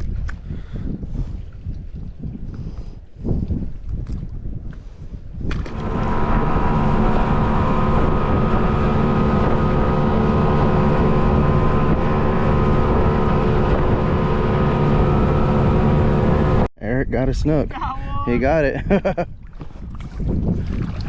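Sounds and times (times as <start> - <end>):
boat motor running: 5.5 - 16.7.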